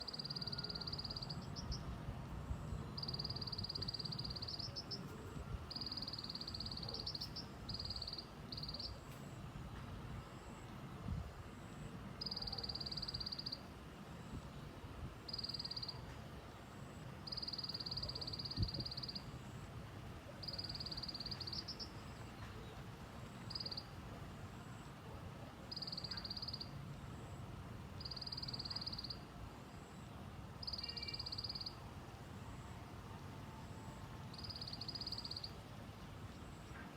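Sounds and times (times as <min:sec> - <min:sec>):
bird call dry rattle of ticks: 0:25.7 - 0:26.8.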